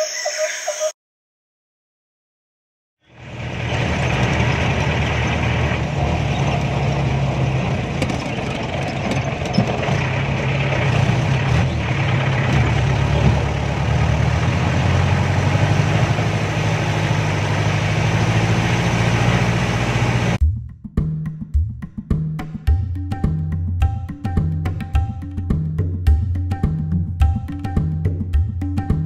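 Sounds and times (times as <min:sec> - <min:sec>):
car engine running: 0:03.1 - 0:20.4
vehicle knocks and rattles: 0:03.6 - 0:15.6.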